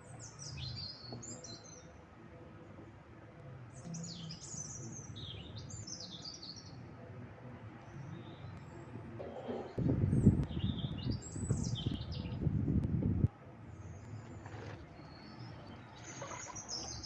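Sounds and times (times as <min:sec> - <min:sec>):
small bird singing: 0:00.0 - 0:02.0, 0:03.7 - 0:06.9, 0:07.7 - 0:12.6, 0:13.6 - 0:17.0
low rumbling background: 0:06.8 - 0:17.0.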